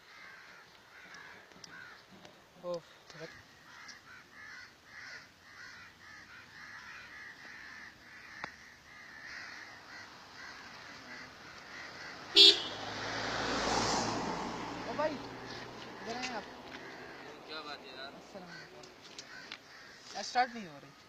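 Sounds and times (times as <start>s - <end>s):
birds calling: 0.0s - 21.0s
approaching vehicle: 9.0s - 20.0s.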